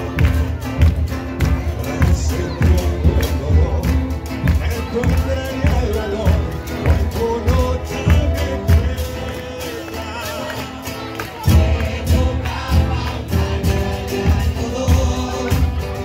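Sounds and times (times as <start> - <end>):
bass drums beating: 0.0 - 10.5, 11.4 - 16.0
choir singing in unison: 11.5 - 16.0.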